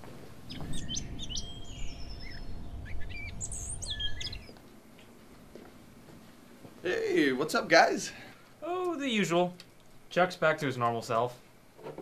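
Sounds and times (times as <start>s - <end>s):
low outdoor rumble: 0.0s - 10.8s
small birds chirping: 0.4s - 5.2s.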